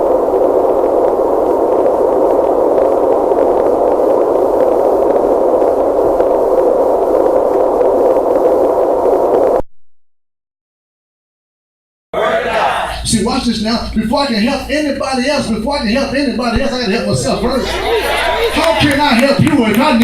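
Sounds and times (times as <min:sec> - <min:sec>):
static-like hiss: 0:00.0 - 0:09.6.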